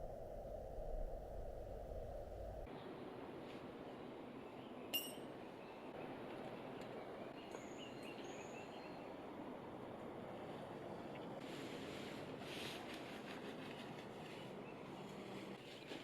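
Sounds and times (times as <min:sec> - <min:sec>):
outdoor background hiss: 0:00.0 - 0:16.0
sharp ringing clink: 0:05.0 - 0:05.3.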